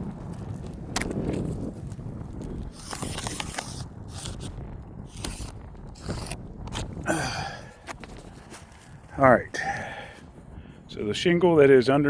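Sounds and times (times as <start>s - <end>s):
marker scratching on roof shingle: 2.6s - 8.8s.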